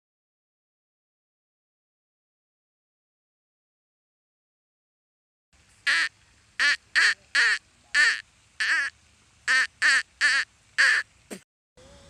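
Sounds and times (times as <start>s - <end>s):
duck quacking: 5.8s - 8.9s, 9.5s - 11.4s.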